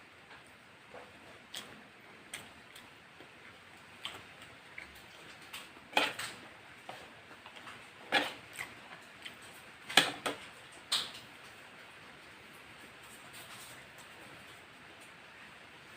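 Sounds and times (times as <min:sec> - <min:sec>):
chewing crunches and clicks: 0:00.3 - 0:06.4.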